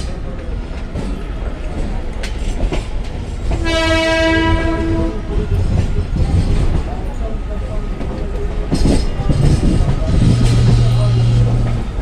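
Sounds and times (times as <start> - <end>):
train running low rumble: 0.0 - 12.0
train horn: 3.6 - 5.3.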